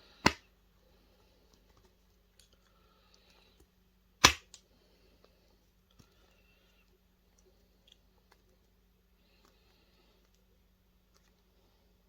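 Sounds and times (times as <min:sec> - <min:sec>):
snips snapping through plastic: 0:00.2 - 0:00.5, 0:04.2 - 0:04.6.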